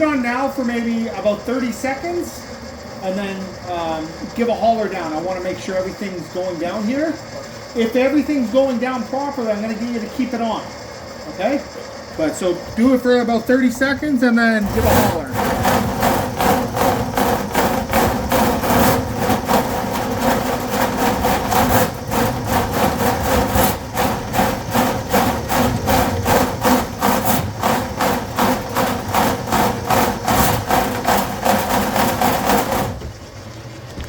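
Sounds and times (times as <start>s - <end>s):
drain machine motor humming: 0.0s - 34.0s
spinning cable knocking: 12.7s - 34.0s.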